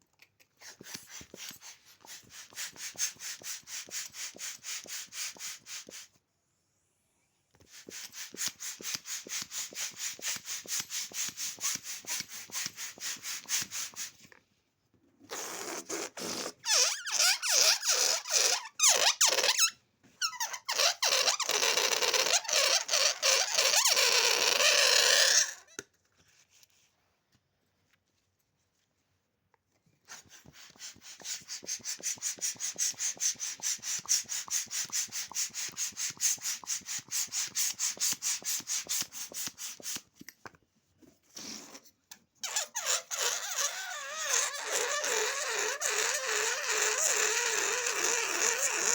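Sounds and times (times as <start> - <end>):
balloon pump strokes: 0.6 - 6.2, 7.6 - 14.3, 15.3 - 25.8, 30.0 - 40.1, 42.4 - 48.9
rushing squeaky stretch: 15.3 - 25.8, 42.4 - 48.9.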